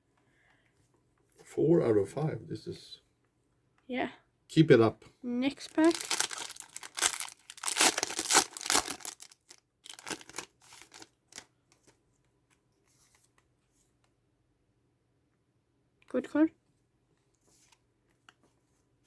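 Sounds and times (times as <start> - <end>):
foil wrapper tearing and crinkling: 5.7 - 11.4.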